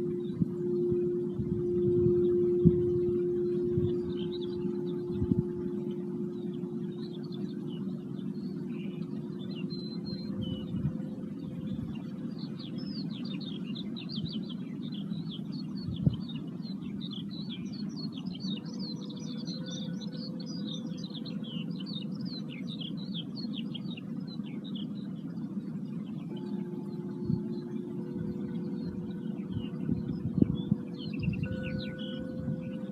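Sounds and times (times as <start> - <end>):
singing bowl tones: 0.0 - 12.6, 18.5 - 21.9, 25.8 - 32.9
low steady rumble: 0.0 - 13.4, 25.0 - 32.9
birds twittering: 0.0 - 32.9.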